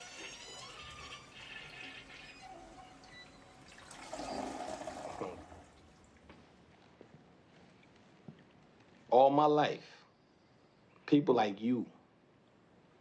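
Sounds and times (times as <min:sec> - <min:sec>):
toilet flushing: 0:00.0 - 0:06.2.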